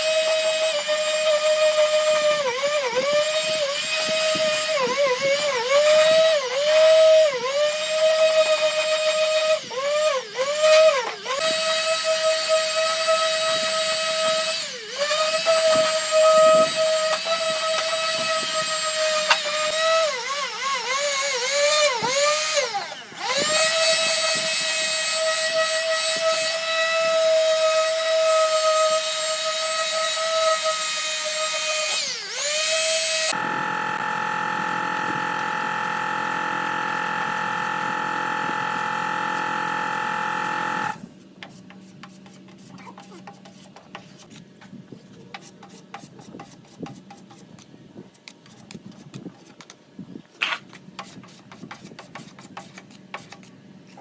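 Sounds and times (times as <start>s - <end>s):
power tool whining: 0.0s - 41.1s.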